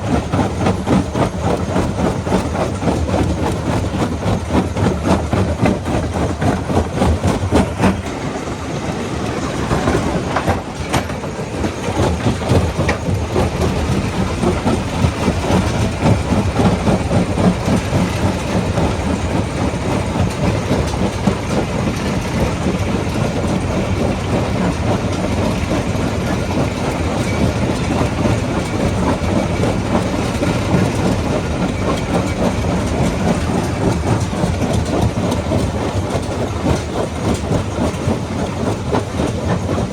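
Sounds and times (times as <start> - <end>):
low machine rumble: 0.0 - 39.9.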